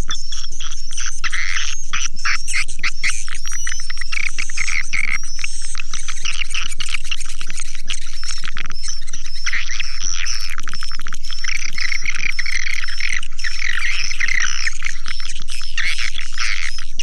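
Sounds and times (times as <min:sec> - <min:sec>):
swiftlets twittering: 0:02.4 - 0:17.0.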